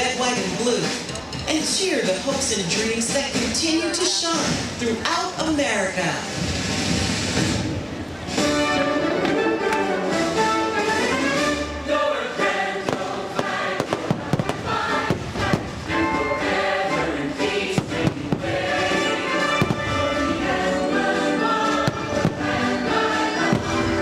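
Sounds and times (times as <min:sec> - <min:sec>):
choir and orchestra music: 0:08.3 - 0:24.0
fireworks bursts: 0:12.4 - 0:24.0.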